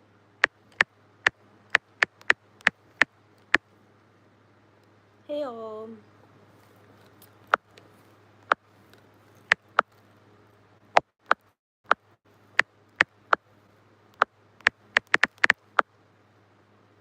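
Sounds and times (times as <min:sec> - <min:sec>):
mouth clicks and smacks chewing: 0:14.2 - 0:15.6.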